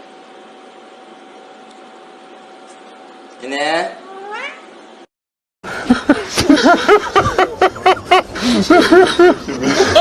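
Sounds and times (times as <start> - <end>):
person laughing hard: 5.7 - 10.0.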